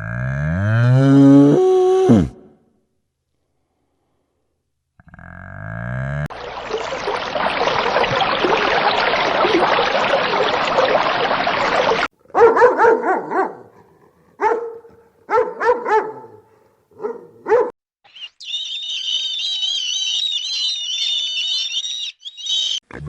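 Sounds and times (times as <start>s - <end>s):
puppy barking: 12.3s - 13.8s, 14.4s - 17.8s.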